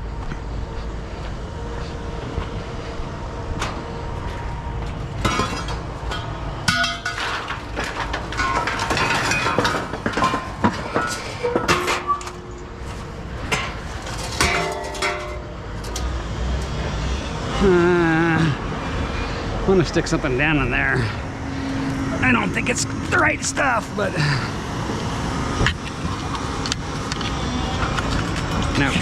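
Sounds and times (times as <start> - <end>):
steady low rumble: 0.0 - 29.0
scrap metal clanking: 5.2 - 17.0
sharp ringing metal hits: 14.4 - 17.4.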